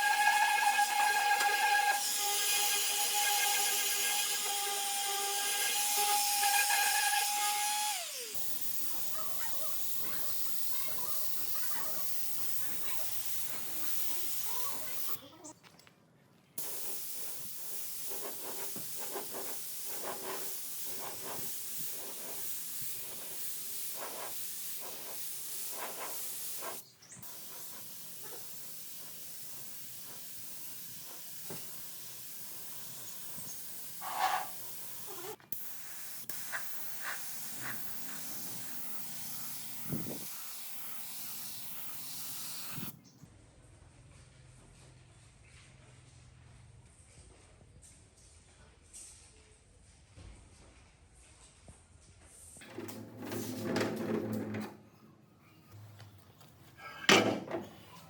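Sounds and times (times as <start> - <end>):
power tool whine: 0.0 - 15.2, 37.2 - 43.0
spraying hiss: 7.3 - 15.2, 16.6 - 43.0.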